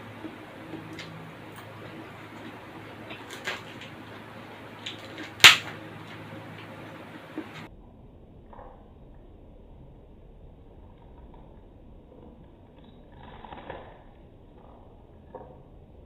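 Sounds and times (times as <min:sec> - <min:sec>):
eating clicks: 0:00.0 - 0:07.7, 0:11.0 - 0:15.8
steady low hum: 0:00.0 - 0:16.0.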